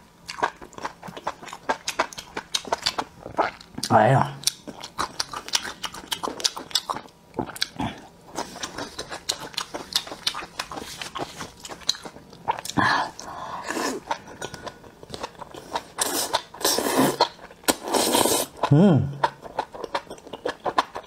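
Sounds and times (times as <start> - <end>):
crisp crunching chewing: 0.3 - 12.8
slurping: 15.6 - 18.7.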